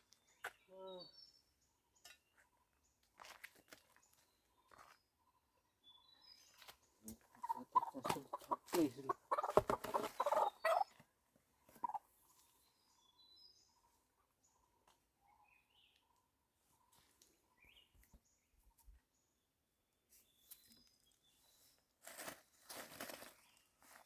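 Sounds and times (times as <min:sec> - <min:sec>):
chicken squawking: 0:07.4 - 0:10.8.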